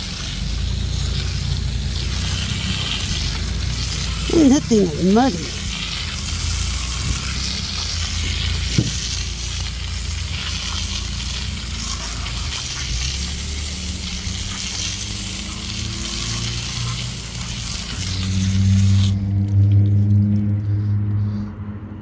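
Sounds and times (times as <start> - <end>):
water spray rinsing boards: 6.6 - 19.0
low engine hum: 18.2 - 22.0.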